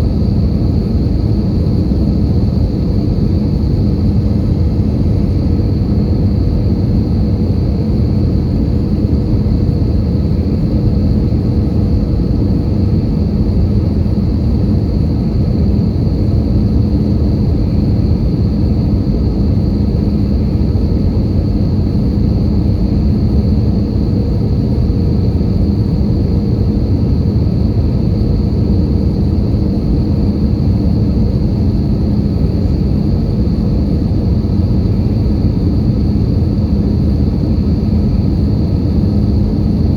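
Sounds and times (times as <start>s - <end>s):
airplane cabin engine rumble: 0.0s - 39.9s
faint high whine: 0.0s - 39.9s.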